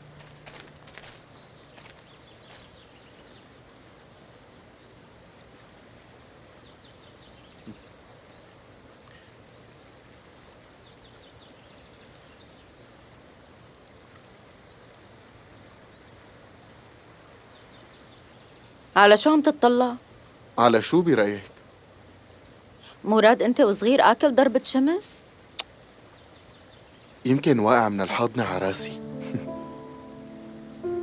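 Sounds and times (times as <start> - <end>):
low hiss and hum: 0.0 - 31.0
faint bird chirps: 6.1 - 9.8, 17.4 - 18.9.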